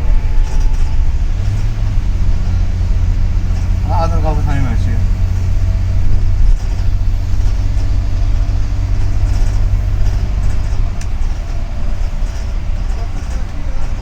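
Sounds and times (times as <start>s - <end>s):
bus engine and road noise: 0.0s - 14.0s.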